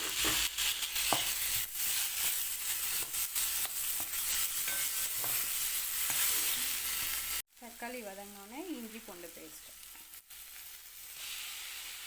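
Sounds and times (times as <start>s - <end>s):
spatula scraping a pan: 0.0s - 7.4s
food sizzling in oil: 0.0s - 12.0s.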